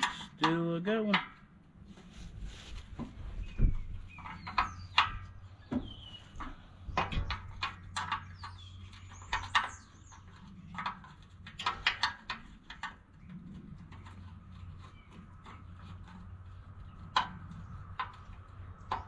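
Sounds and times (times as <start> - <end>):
birds chirping: 3.3 - 12.0, 12.8 - 19.0.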